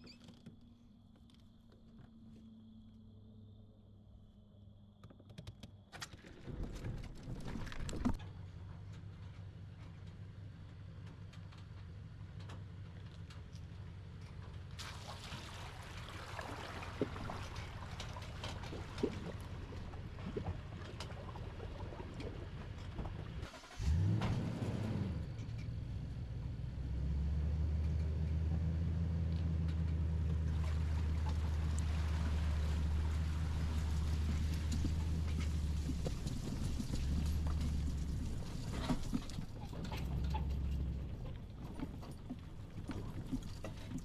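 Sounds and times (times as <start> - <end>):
engine running and revving: 22.6 - 41.6.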